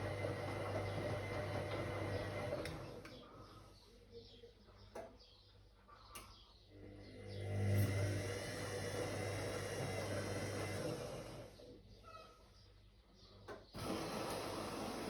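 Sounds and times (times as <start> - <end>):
washing machine motor humming: 0.0 - 3.2, 6.8 - 11.8, 13.8 - 15.0.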